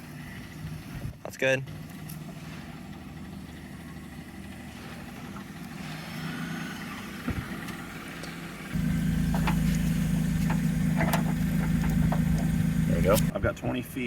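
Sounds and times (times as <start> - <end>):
car engine idling: 0.0 - 14.0
loud low hum: 8.6 - 13.4.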